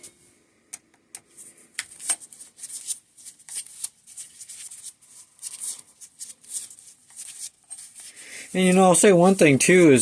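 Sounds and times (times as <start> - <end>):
tool being handled: 1.2 - 3.8, 5.4 - 9.4.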